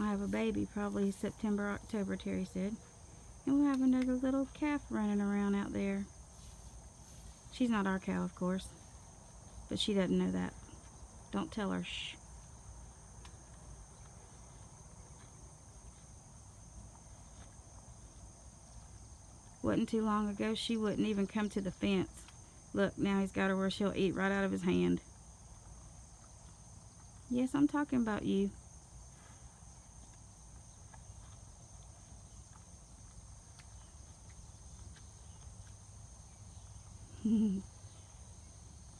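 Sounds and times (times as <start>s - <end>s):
insects trilling: 0.0s - 38.9s
high-pitched insect chorus: 23.8s - 38.9s.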